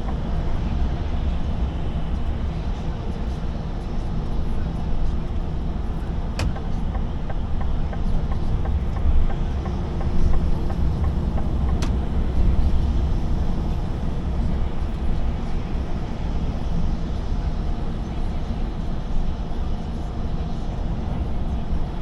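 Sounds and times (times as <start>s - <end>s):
lorry engine rumble: 0.0s - 22.0s
sharp click: 6.4s - 6.7s.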